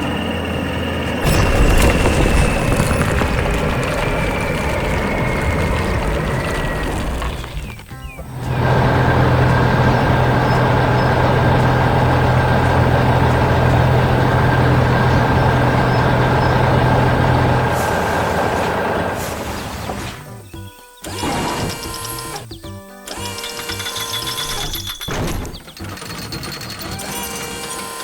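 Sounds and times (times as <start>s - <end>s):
heavy vehicle engine humming: 0.0s - 20.5s.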